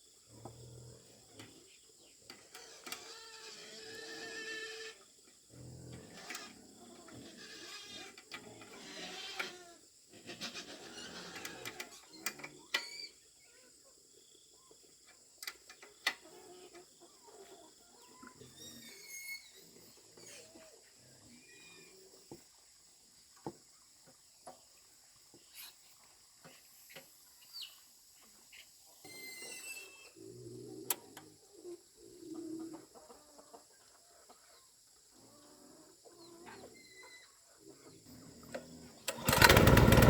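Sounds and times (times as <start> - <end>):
faint animal calls: 16.0 - 22.4, 28.5 - 39.4.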